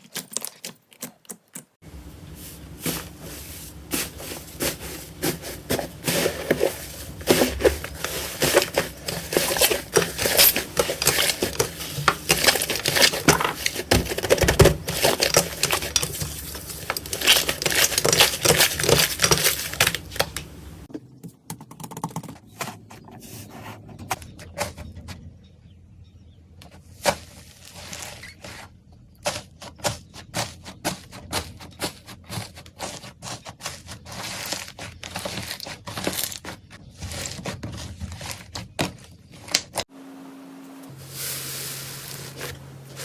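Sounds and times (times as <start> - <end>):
slime squishing by hand: 0.0 - 20.9.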